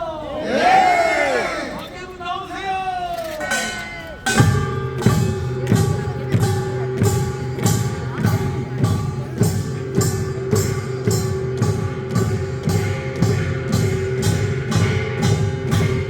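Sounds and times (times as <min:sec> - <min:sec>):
percussion strikes: 0:03.3 - 0:16.0.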